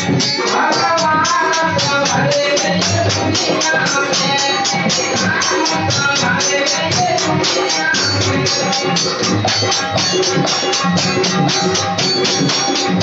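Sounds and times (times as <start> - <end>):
fast percussion beat: 0.0 - 13.0
live band music: 3.0 - 13.0.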